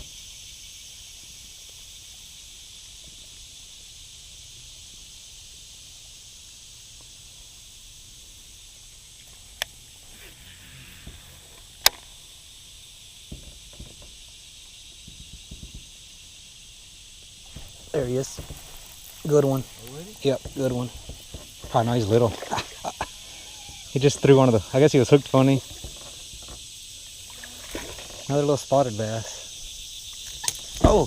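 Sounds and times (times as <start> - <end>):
high-pitched outdoor hiss: 0.0 - 31.0.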